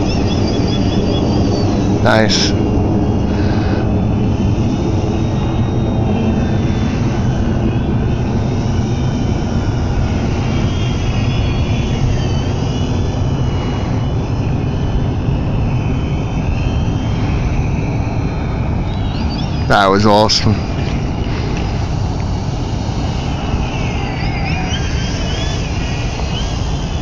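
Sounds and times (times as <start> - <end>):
model plane motor whining: 0.0 - 27.0
steady low rumble: 0.0 - 27.0.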